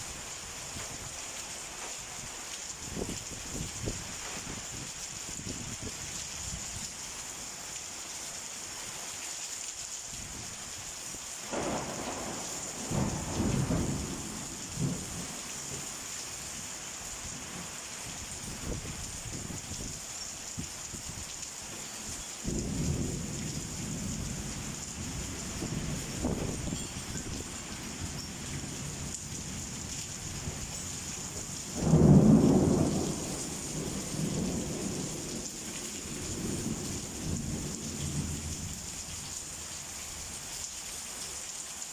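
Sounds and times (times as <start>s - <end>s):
steady rain: 0.0s - 41.9s
thunder rolling: 11.5s - 15.3s, 31.8s - 35.0s.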